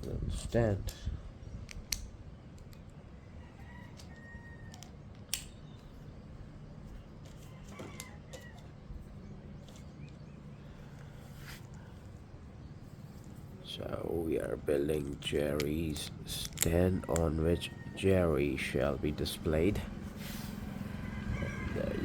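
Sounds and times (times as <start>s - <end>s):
faint rooster crowing: 3.2s - 5.0s, 7.2s - 12.0s, 17.3s - 18.9s, 20.1s - 22.0s
plastic bricks clicking together: 15.2s - 17.2s.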